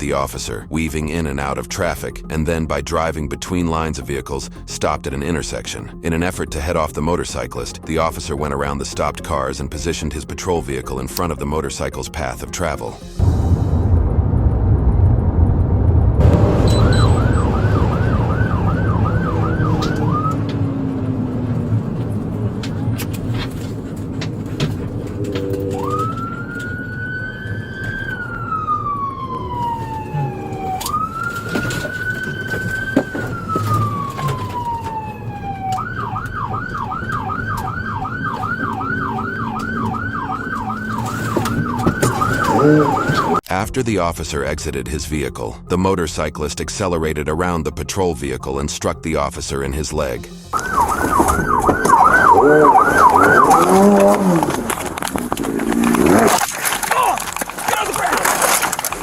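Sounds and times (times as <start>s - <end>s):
engine and road rumble: 0.0s - 43.6s, 49.3s - 59.0s
police siren yelping: 16.2s - 43.4s, 50.5s - 54.9s.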